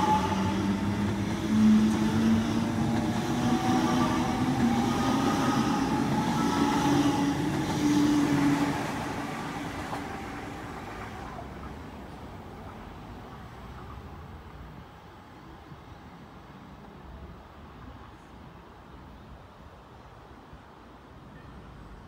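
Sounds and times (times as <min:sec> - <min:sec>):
train wheels rumbling: 0:00.0 - 0:14.8.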